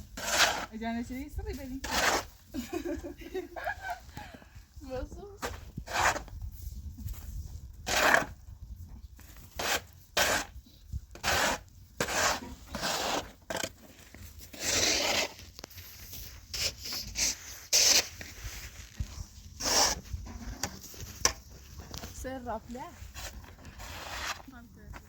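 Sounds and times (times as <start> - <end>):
rough scraping strokes: 0.2 - 0.7, 1.8 - 2.4, 7.3 - 8.4, 9.5 - 10.5, 11.1 - 24.6.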